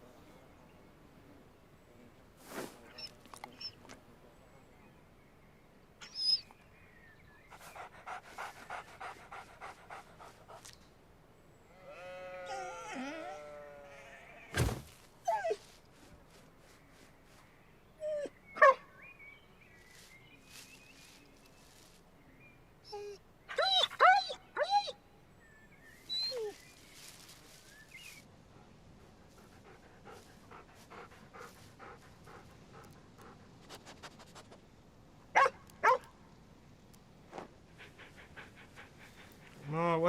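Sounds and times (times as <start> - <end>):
cartoon dog whining and yelping: 22.9 - 24.9.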